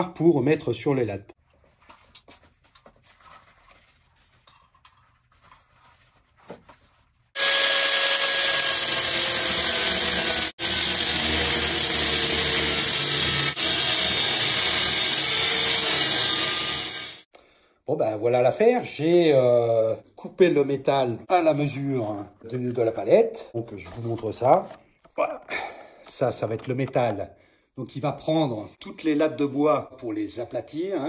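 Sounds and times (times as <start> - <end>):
handling sounds: 1.4 - 7.3
angle grinder cutting steel: 7.4 - 17.3.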